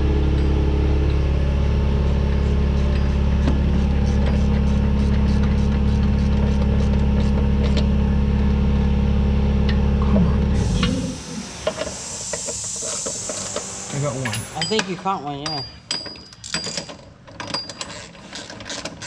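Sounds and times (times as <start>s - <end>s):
motor humming: 0.0s - 14.6s.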